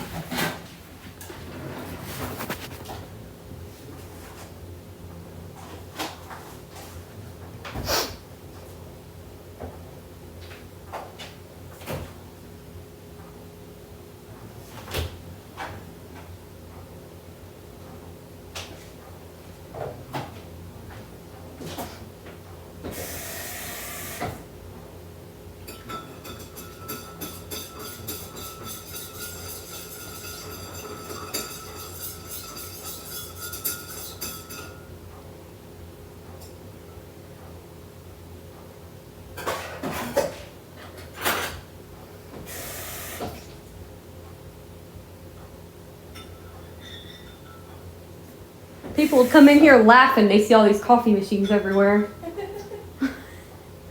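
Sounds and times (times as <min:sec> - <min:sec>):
espresso machine hiss: 0:22.9 - 0:24.4, 0:42.5 - 0:43.4, 0:49.0 - 0:49.6.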